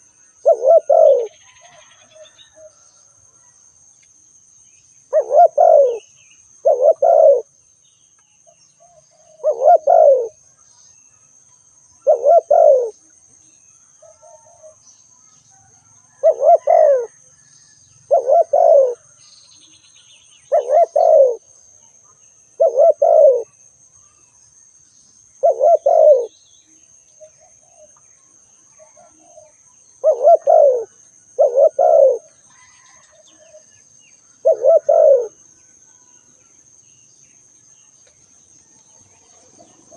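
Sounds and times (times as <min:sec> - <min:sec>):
dove cooing: 0:00.0 - 0:02.8, 0:05.1 - 0:07.5, 0:08.8 - 0:10.4, 0:12.0 - 0:13.0, 0:16.1 - 0:17.2, 0:18.1 - 0:19.0, 0:20.5 - 0:21.4, 0:22.6 - 0:23.5, 0:25.4 - 0:26.4, 0:28.8 - 0:33.7, 0:34.4 - 0:35.4.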